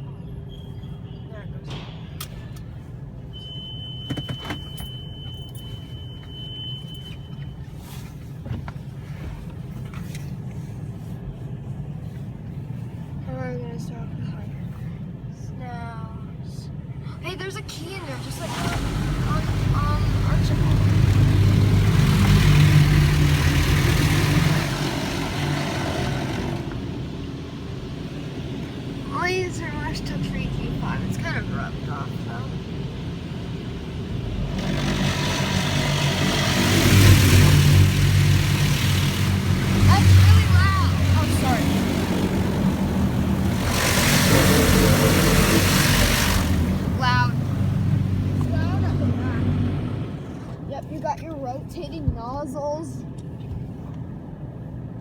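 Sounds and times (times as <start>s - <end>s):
low mechanical hum: 0.0s - 55.0s
car engine idling: 16.4s - 52.0s.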